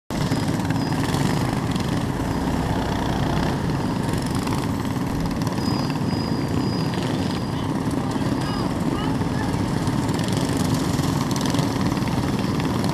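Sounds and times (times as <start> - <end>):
mini bike engine running: 0.1 - 12.9.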